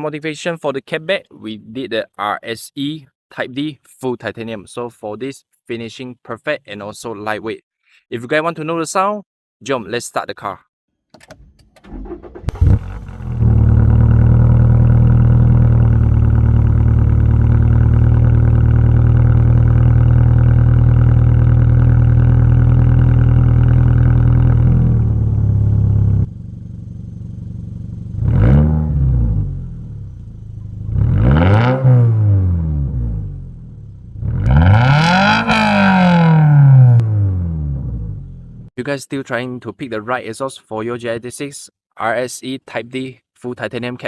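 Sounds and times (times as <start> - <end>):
car engine idling: 11.9 - 28.3, 29.4 - 31.0
engine revs blipped: 28.0 - 38.6.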